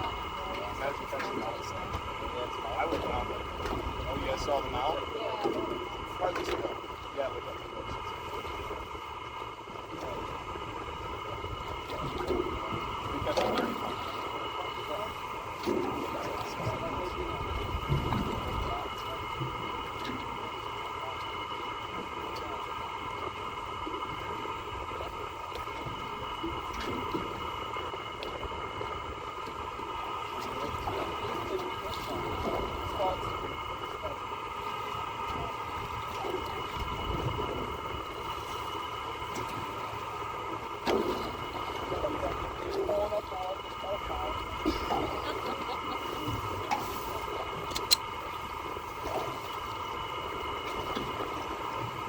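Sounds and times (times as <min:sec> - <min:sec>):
boat engine running: 0:00.0 - 0:52.0
faint clicks: 0:47.6 - 0:48.1.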